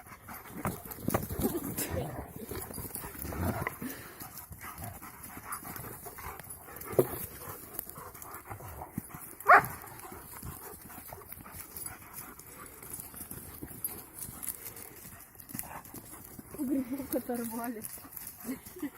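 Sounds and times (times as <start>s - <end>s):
dog high calls: 9.4s - 9.9s.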